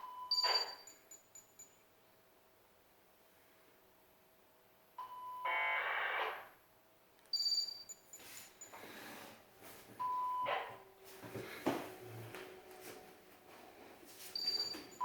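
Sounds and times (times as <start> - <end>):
electronic beeps: 0.0 - 1.6, 7.4 - 8.7, 14.3 - 15.0.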